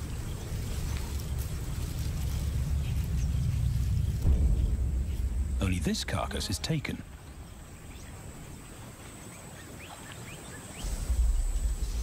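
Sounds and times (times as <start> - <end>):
deep low rumble: 0.0 - 8.8
steady soft hiss: 0.0 - 12.0.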